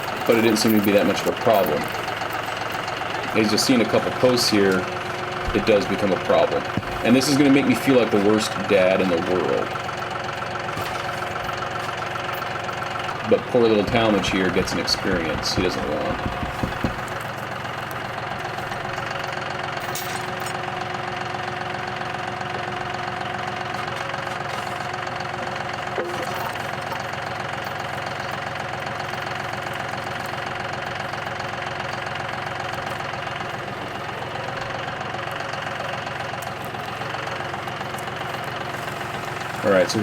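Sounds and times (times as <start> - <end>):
tractor engine running: 0.0 - 40.0
faint knock: 13.9 - 17.2.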